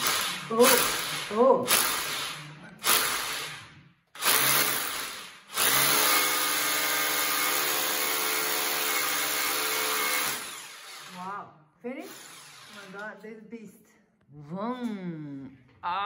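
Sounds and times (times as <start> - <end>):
rotary hammer drilling: 0.0 - 11.3, 12.1 - 13.0.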